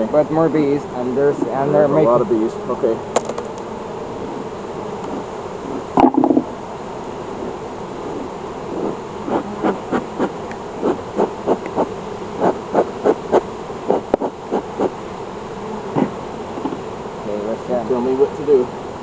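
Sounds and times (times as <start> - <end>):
honeybees humming: 0.0 - 19.0
short loud bee buzzes: 2.5 - 6.5, 7.3 - 16.9.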